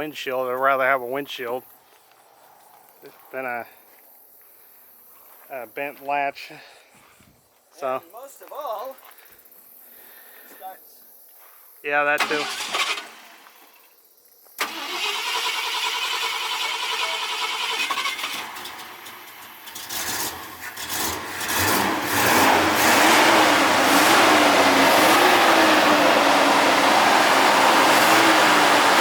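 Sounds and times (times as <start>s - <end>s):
truck engine starting and running: 12.1s - 13.7s, 14.6s - 29.0s.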